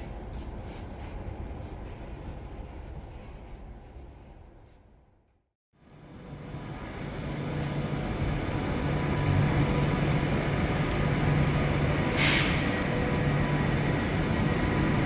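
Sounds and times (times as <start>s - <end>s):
electric train rumble: 5.9s - 15.0s
burst of air hiss: 12.2s - 12.8s.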